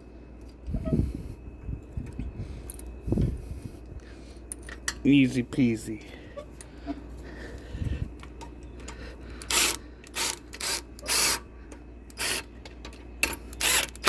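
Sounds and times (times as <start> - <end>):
ratchet wrench ratcheting: 9.4 - 11.4, 12.1 - 12.5, 13.2 - 14.0.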